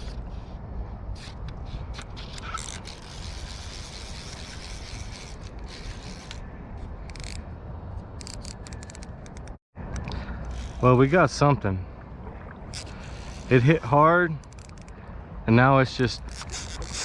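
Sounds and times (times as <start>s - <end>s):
wind: 0.0s - 17.0s
fishing reel drag clicking: 1.9s - 6.4s, 7.1s - 7.4s, 8.2s - 11.0s.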